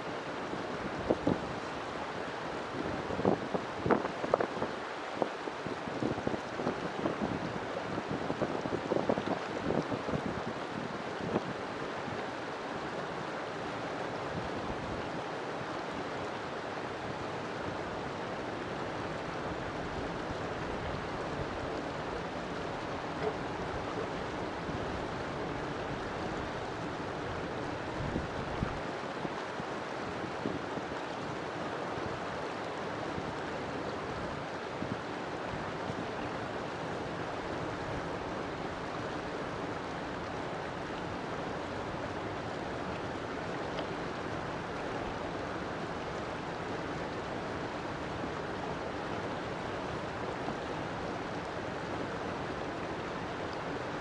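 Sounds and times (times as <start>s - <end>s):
river water flowing: 0.0s - 54.0s.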